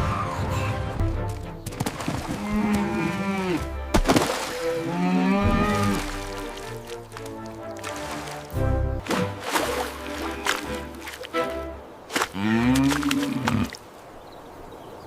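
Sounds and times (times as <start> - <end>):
background music: 0.0 - 13.3
cow mooing: 4.8 - 6.0.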